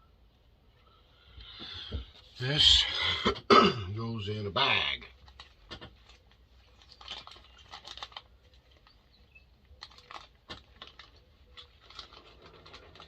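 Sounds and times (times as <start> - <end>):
plastic bag crinkling: 5.2 - 13.0.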